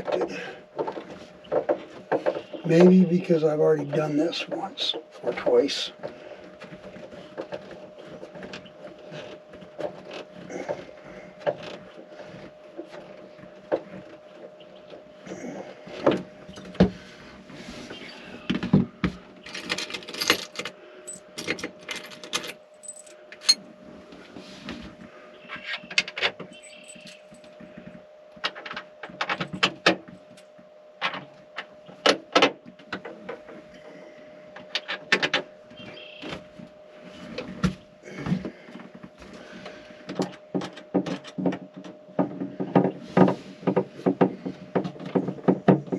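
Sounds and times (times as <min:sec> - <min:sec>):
faint steady hum: 0:00.0 - 0:45.9
metal tools clinking and rattling: 0:19.4 - 0:23.6, 0:25.9 - 0:27.5.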